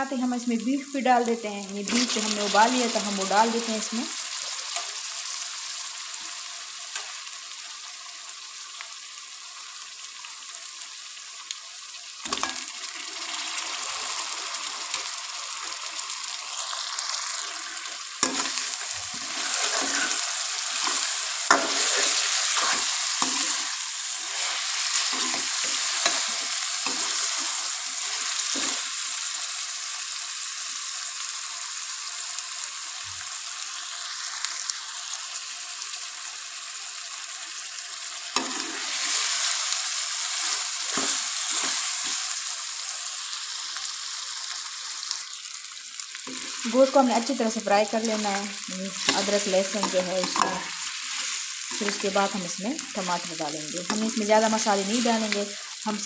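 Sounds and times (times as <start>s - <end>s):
meat sizzling in hot oil: 0.0s - 56.0s
spoon scraping a metal pan: 18.2s - 28.8s, 38.4s - 39.1s, 49.0s - 52.2s.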